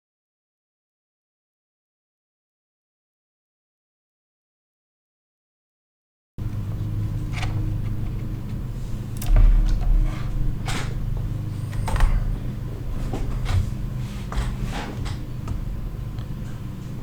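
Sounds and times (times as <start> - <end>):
steady low hum: 6.4 - 17.0.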